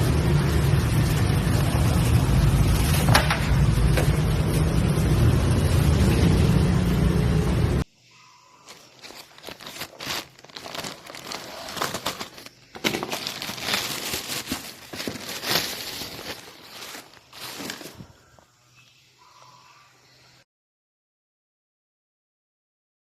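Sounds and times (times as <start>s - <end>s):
crinkling and crackling: 8.6s - 18.5s.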